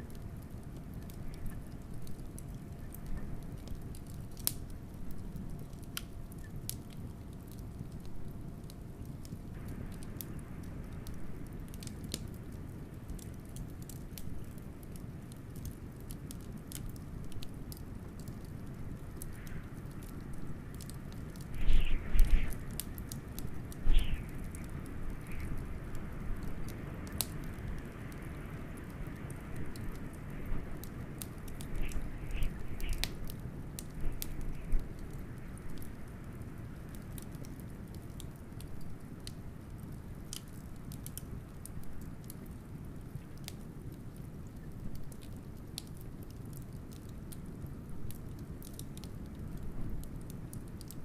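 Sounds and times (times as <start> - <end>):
wood fire crackling: 0.0 - 51.0
wind rumbling: 19.0 - 36.7.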